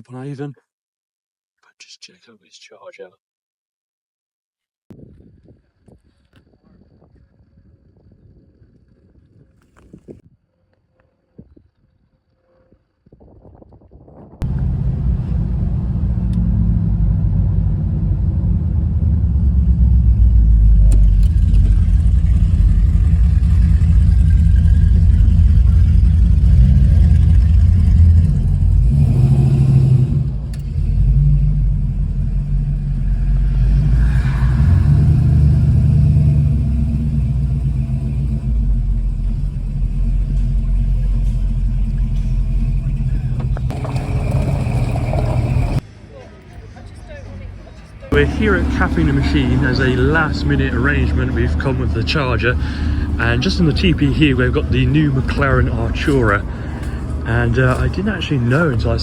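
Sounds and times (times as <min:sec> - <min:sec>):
car engine rumbling: 0:14.4 - 0:46.0, 0:46.6 - 0:59.0.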